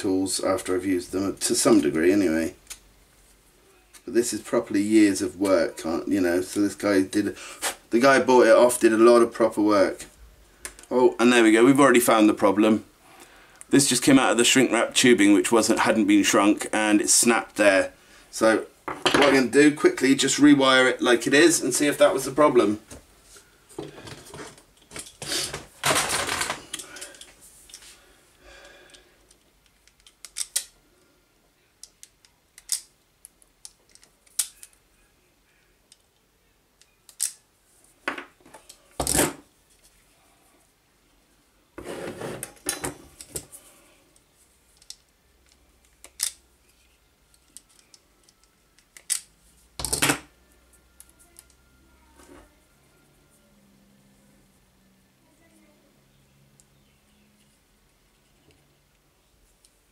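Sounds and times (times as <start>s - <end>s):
wire rustling and scraping: 41.8s - 44.9s.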